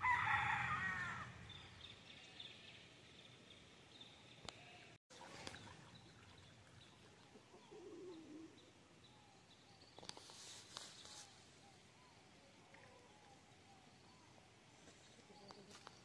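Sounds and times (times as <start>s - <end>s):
rustle: 9.1s - 16.0s.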